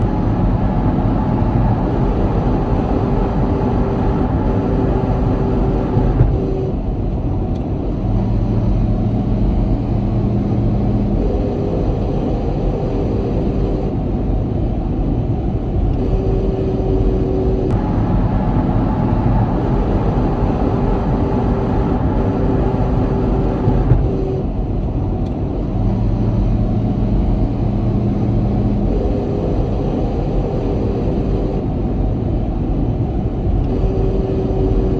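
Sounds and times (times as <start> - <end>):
low hum: 0.0 - 34.9
truck road and engine noise: 0.0 - 34.9.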